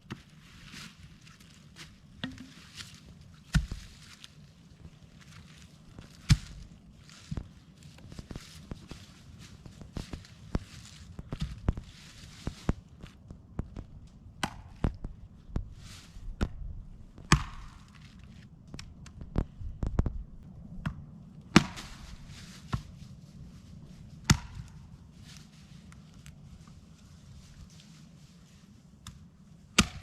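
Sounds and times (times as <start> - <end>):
rustling: 0.2 - 14.1, 21.6 - 30.0.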